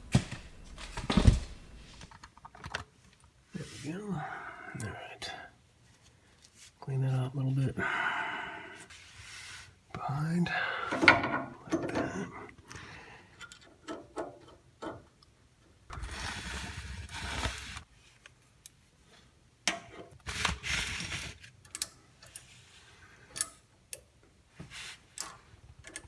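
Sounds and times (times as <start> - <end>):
rustling noise: 0.0 - 2.2
tools and metal parts clicking: 25.1 - 26.0.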